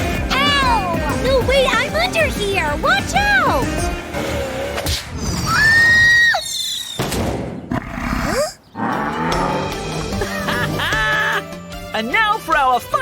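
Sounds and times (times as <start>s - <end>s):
cartoon background music: 0.0s - 5.0s, 8.9s - 13.0s.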